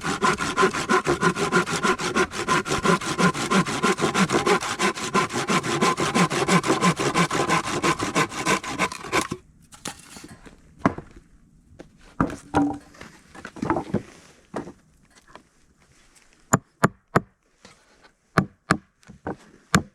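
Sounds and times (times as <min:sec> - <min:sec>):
hand saw cutting wood: 0:00.0 - 0:10.2
wooden knocks: 0:12.5 - 0:12.8.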